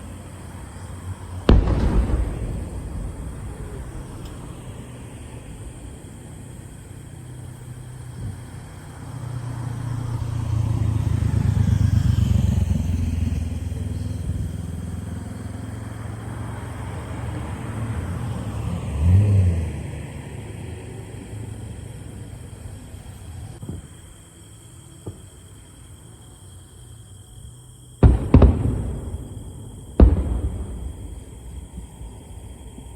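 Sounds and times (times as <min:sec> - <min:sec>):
vehicle engine passing: 0:09.0 - 0:23.6.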